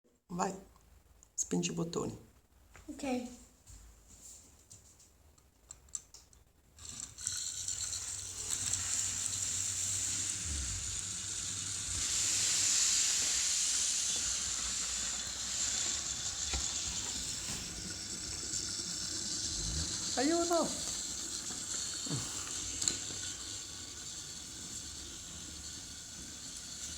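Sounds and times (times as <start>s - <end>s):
toy trains high hiss: 6.8s - 26.9s.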